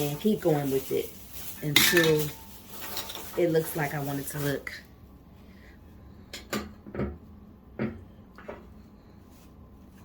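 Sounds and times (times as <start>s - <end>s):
household items clinking: 0.0s - 4.8s.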